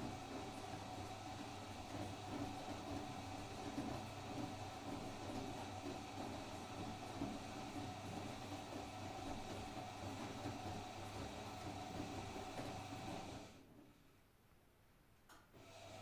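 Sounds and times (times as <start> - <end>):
washing machine running: 0.0 - 13.7, 15.6 - 16.0.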